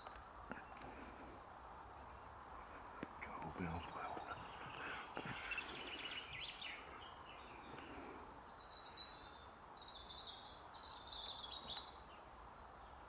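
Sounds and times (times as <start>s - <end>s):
songbird twittering: 0.0s - 0.8s, 2.1s - 7.9s, 8.5s - 12.2s
steady outdoor hiss: 0.0s - 13.0s.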